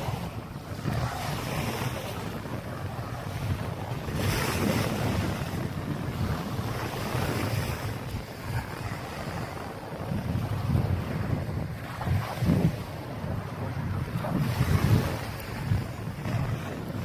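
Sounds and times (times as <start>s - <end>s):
waves washing on beach: 0.0s - 17.0s
wind buffeting microphone: 0.0s - 17.0s.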